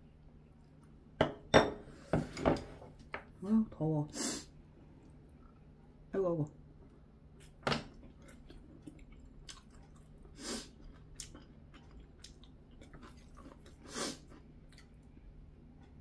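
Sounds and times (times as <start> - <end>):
person chewing food: 7.3 - 16.0.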